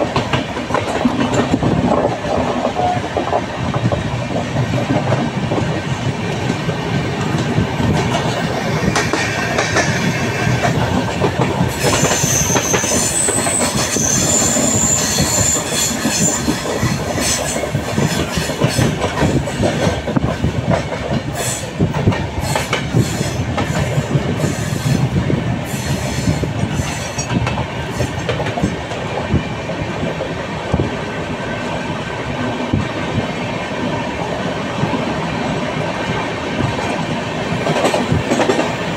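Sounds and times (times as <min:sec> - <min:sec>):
train rumbling on track: 0:00.0 - 0:38.9
high wheel squeal: 0:11.7 - 0:16.6.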